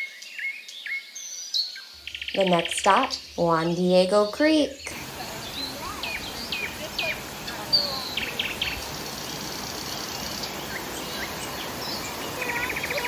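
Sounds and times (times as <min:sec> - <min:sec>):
birds chirping and whistling: 0:00.0 - 0:13.0
steady background hiss: 0:04.4 - 0:13.0
rapid insect trills: 0:04.9 - 0:13.0.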